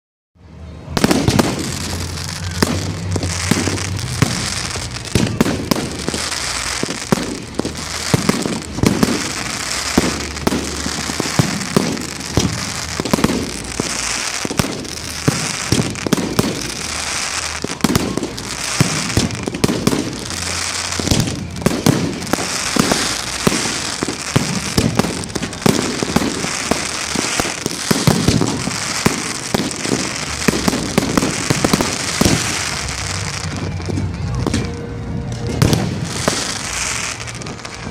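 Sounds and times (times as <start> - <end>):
fireworks bangs and crackling: 0.4 - 37.9.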